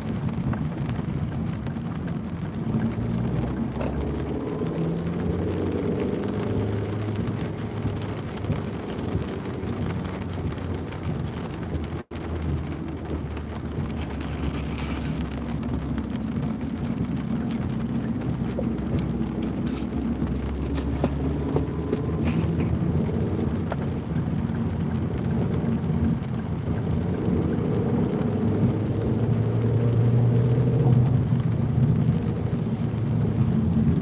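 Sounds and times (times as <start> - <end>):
rain: 0.0 - 34.0
traffic rumble: 0.0 - 34.0
vehicle engine passing by: 17.6 - 23.7.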